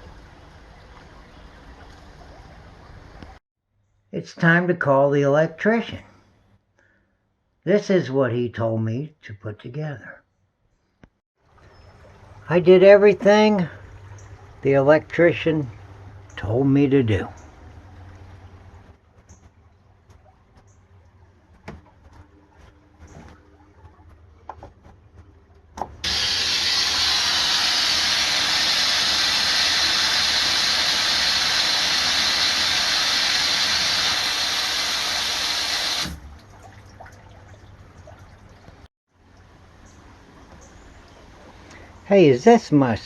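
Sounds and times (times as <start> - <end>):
water rushing out of drain valve: 26.0 - 37.1.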